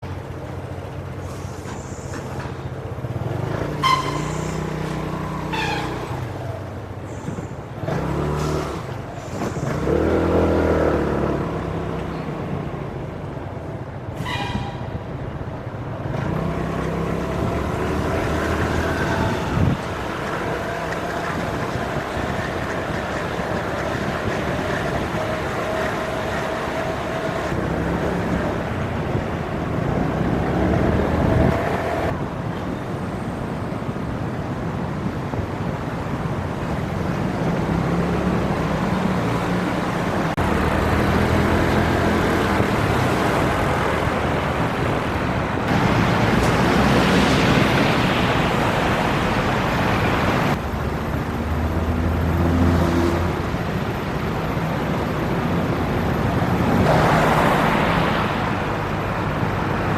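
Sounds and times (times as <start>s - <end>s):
wind noise on microphone: 19.0s - 20.1s, 28.2s - 37.6s.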